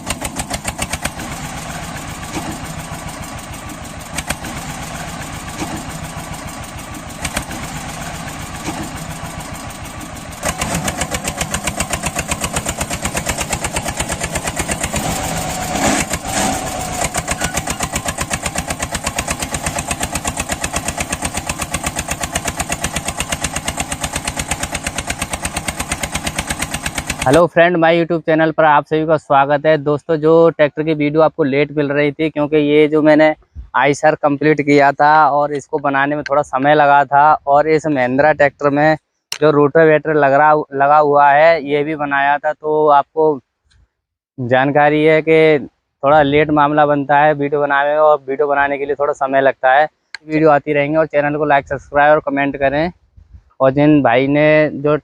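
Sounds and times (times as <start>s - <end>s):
small tractor engine chugging: 0.0s - 27.6s.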